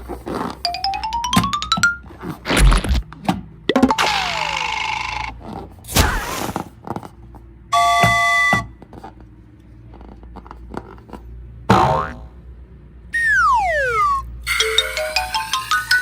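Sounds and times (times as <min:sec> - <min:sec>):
hiss: 0:05.9 - 0:06.6
cartoon falling whistle: 0:13.2 - 0:14.3.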